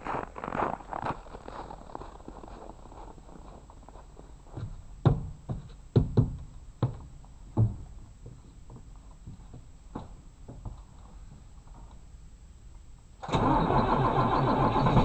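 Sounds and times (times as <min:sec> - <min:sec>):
knocks and thumps: 0:04.6 - 0:10.8.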